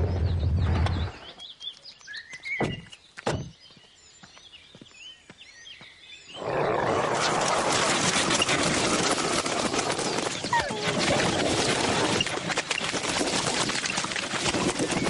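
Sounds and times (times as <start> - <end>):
birds chirping: 0.0 - 13.2
sharp thuds: 2.6 - 3.6.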